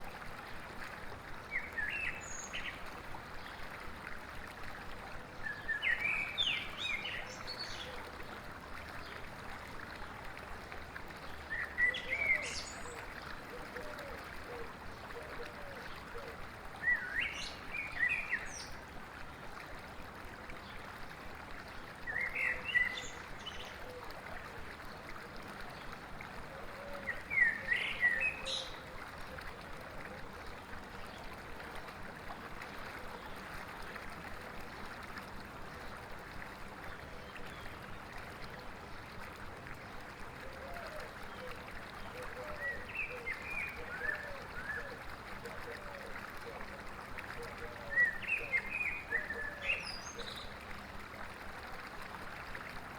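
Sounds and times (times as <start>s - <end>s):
river water rushing: 27.1s - 37.8s, 41.4s - 46.3s, 46.9s - 50.0s.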